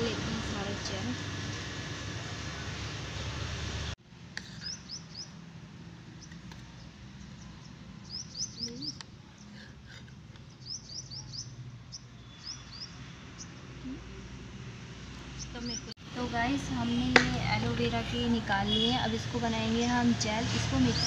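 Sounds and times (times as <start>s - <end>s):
small birds chirping: 4.4s - 5.4s, 6.1s - 14.4s, 15.0s - 16.0s, 18.7s - 21.0s.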